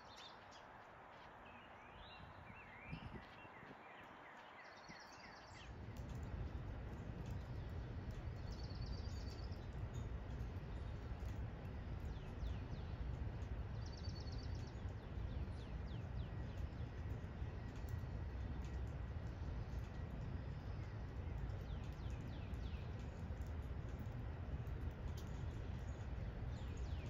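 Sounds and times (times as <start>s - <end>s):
songbirds trilling and chirping: 0.0s - 27.0s
steady low rumble: 5.5s - 27.0s.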